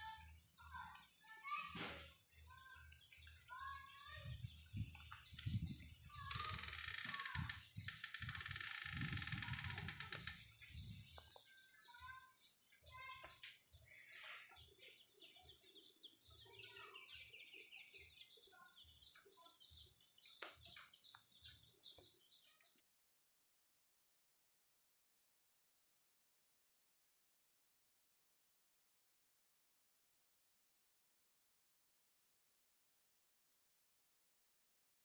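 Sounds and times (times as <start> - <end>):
small birds chirping faintly: 0.0 - 22.8.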